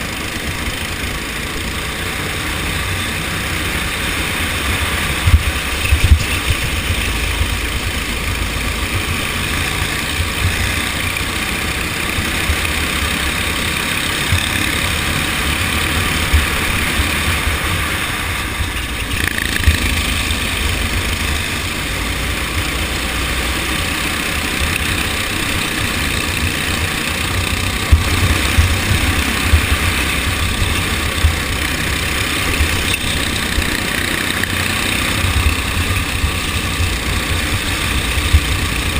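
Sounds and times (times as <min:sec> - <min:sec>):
go-kart engine running: 0:00.0 - 0:38.9.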